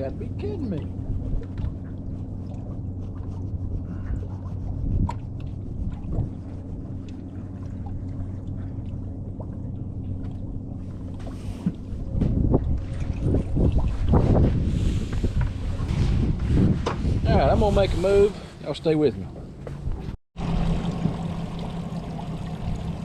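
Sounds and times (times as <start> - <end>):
wind buffeting microphone: 0.0 - 7.1, 11.7 - 18.4
boat motor humming: 0.0 - 15.9, 19.2 - 23.0.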